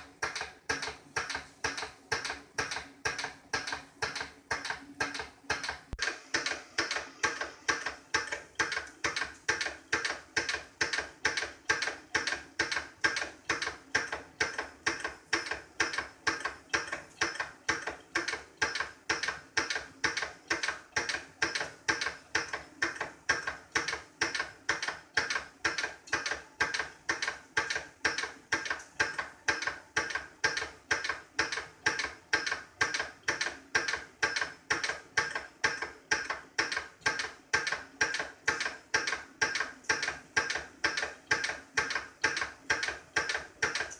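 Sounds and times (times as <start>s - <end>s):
regular mechanical clicking: 0.0s - 43.9s.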